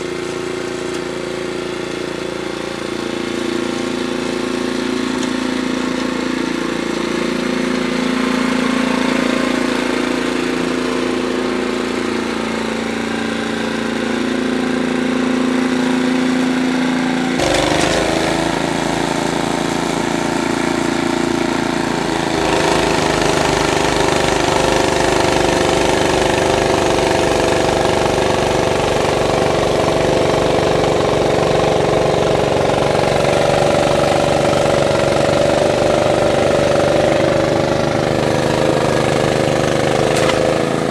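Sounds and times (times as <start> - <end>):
engine running: 0.0 - 40.9.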